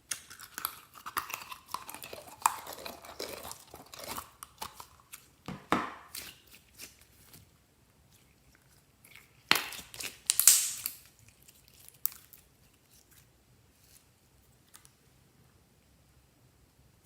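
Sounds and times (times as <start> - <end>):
crinkling and crackling: 0.1 - 15.2.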